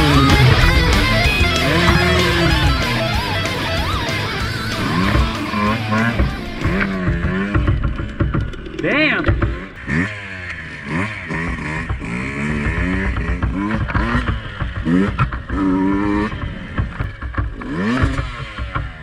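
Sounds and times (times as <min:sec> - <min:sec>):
dirt bike engine revving: 0:00.0 - 0:19.0
bike clatter over rough ground: 0:04.4 - 0:19.0.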